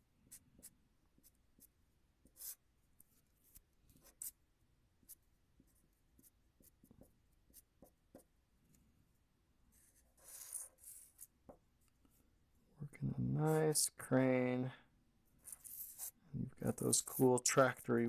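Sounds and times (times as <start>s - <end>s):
pen scratching on paper: 0.3s - 4.4s, 5.0s - 8.3s, 9.7s - 11.6s, 15.4s - 16.2s.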